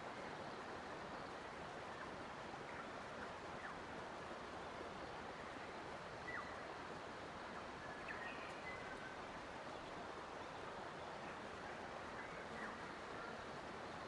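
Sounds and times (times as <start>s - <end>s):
flowing water rushing: 0.0s - 14.0s
faint bird chirps: 5.0s - 6.7s, 7.6s - 13.5s.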